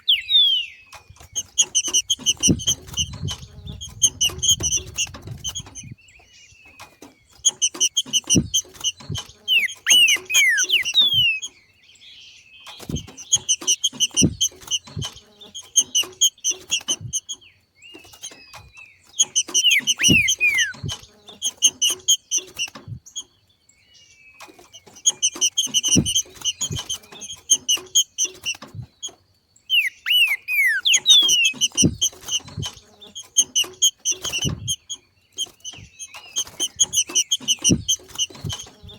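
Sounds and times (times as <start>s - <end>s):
bird chattering call: 0.0s - 6.0s, 7.4s - 11.6s, 19.2s - 22.8s, 29.7s - 38.9s.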